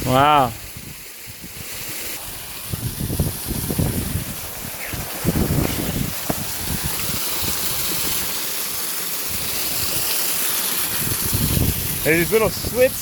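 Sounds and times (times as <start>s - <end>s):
wind buffeting microphone: 0.0s - 8.3s, 10.9s - 13.0s
water pouring over small waterfalls: 0.0s - 13.0s.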